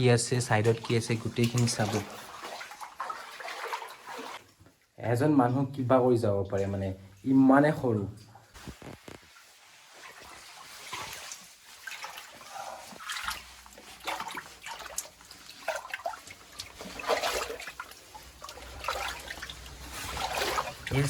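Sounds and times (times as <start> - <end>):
wading through shallow water: 0.6 - 4.4, 9.8 - 21.0.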